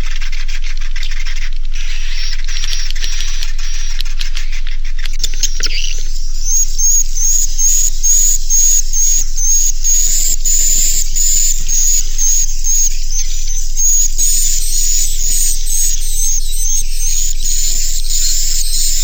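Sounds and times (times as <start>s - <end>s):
low electrical hum: 1.4s - 19.0s
high twittering bird chatter: 1.8s - 19.0s.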